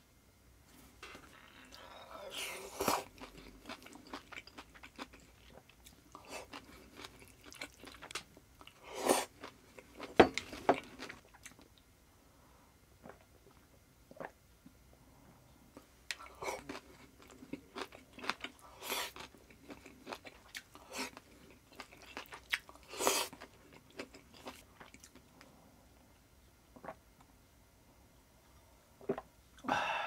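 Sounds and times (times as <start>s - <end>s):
crunchy chewing: 1.1s - 11.7s, 16.1s - 25.5s.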